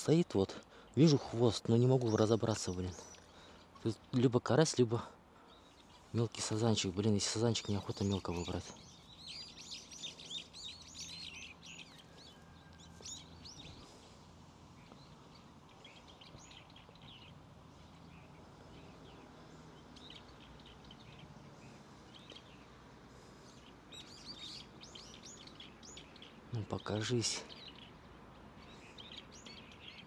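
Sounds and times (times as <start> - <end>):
faint outdoor background: 0.0 - 30.0
small birds chirping and singing: 0.0 - 30.0.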